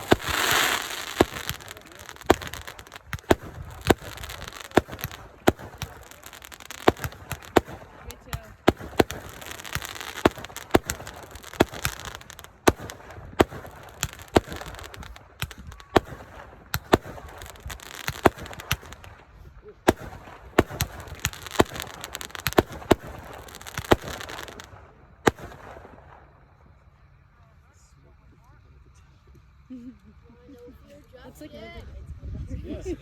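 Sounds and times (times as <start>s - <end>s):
fireworks bangs: 0.0s - 26.4s
fireworks crackling: 0.0s - 26.5s.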